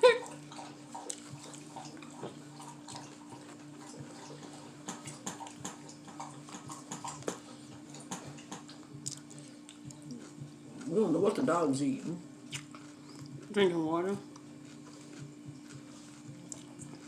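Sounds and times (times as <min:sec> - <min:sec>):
dog lapping water: 0:00.0 - 0:09.0.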